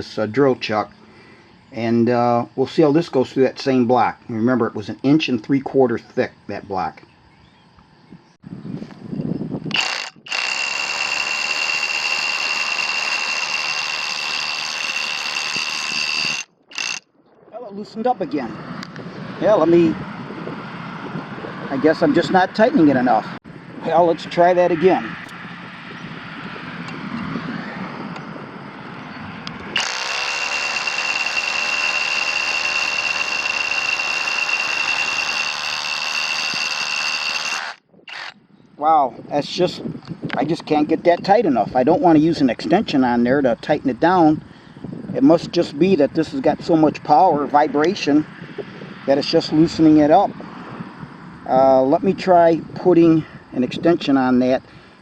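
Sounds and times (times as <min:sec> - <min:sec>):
rotary hammer drilling masonry: 0:09.7 - 0:17.0, 0:29.7 - 0:38.4.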